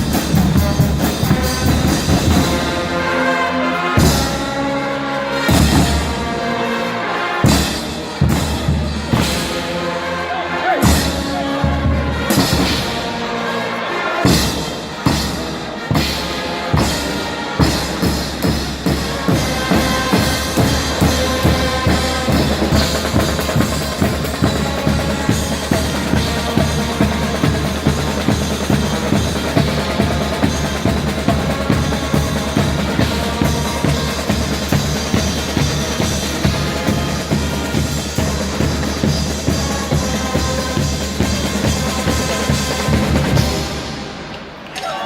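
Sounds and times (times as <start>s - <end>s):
bass drum and snare beat: 0.0s - 2.9s, 7.4s - 9.7s, 10.8s - 13.0s
brass band playing: 0.0s - 44.7s.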